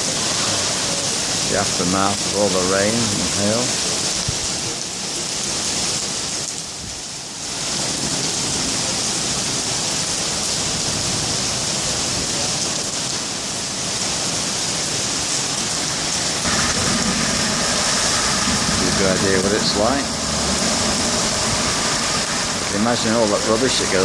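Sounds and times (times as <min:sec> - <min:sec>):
rain: 0:00.0 - 0:24.0
running storm water: 0:00.0 - 0:24.0.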